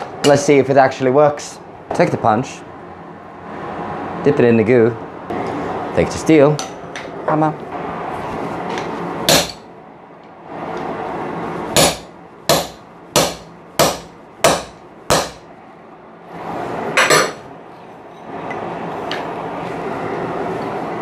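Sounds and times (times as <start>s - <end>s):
hammer striking punch into steel: 9.3s - 9.6s, 11.8s - 15.4s.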